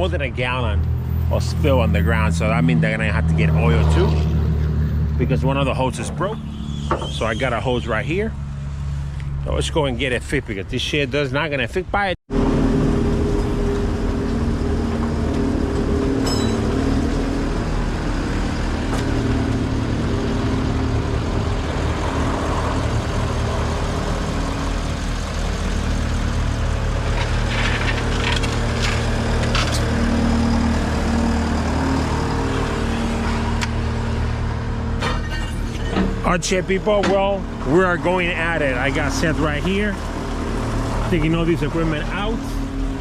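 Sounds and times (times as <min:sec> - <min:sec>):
engine running: 0:00.0 - 0:43.0.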